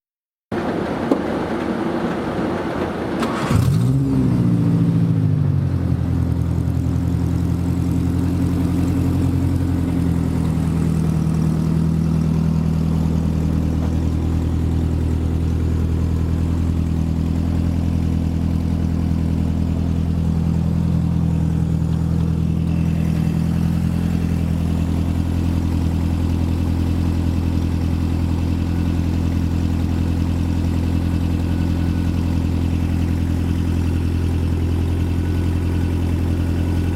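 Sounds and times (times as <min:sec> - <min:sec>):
car engine starting and idling: 0:00.5 - 0:36.9.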